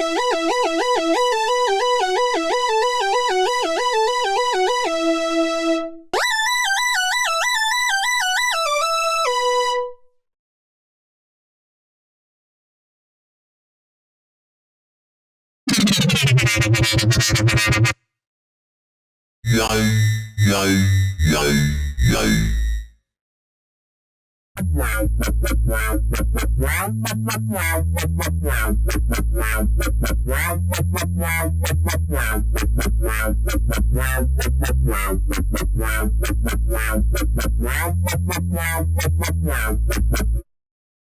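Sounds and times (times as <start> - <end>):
low synth bass line: 19.5 - 22.8, 24.6 - 40.4.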